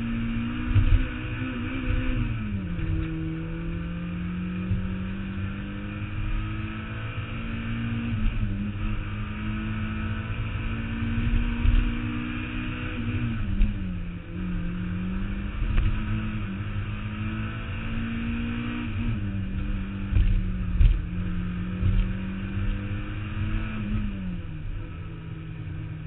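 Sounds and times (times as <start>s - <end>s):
car engine running hard: 0.0s - 26.0s
heavy low rumble: 18.9s - 23.0s.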